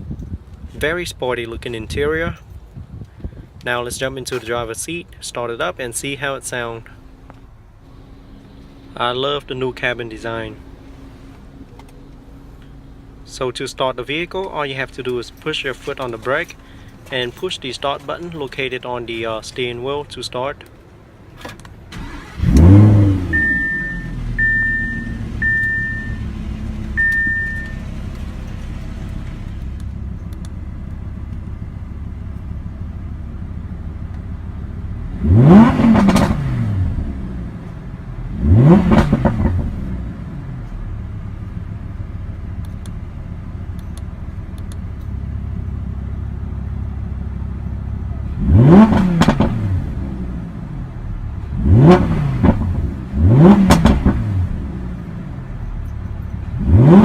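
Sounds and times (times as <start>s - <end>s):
sports car engine revving: 21.9s - 57.0s
short electronic beeps: 23.2s - 26.3s, 27.0s - 27.9s.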